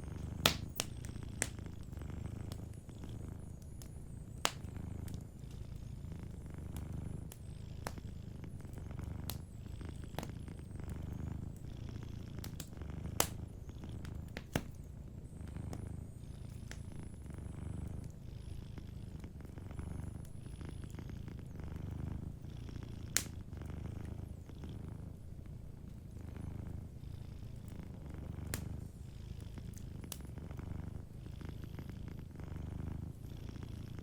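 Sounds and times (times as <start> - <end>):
wood fire crackling and popping: 0.0 - 18.2, 23.0 - 24.2, 27.6 - 28.8
cat purring: 0.0 - 34.0.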